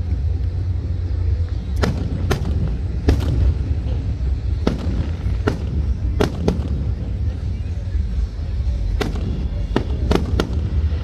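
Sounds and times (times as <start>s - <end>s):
firework bangs: 0.0s - 11.0s
low rumble: 0.0s - 11.0s.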